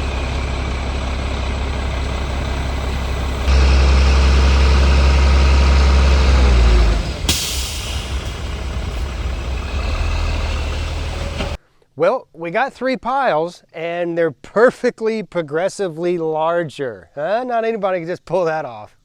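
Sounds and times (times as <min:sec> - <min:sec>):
diesel truck engine revving: 0:00.0 - 0:11.6
air brake hiss: 0:06.8 - 0:11.6.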